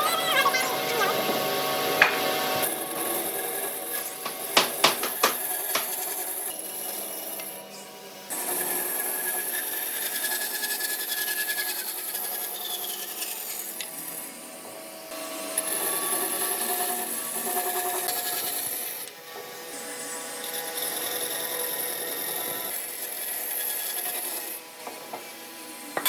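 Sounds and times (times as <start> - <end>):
tools scraping wood: 2.0 - 7.6.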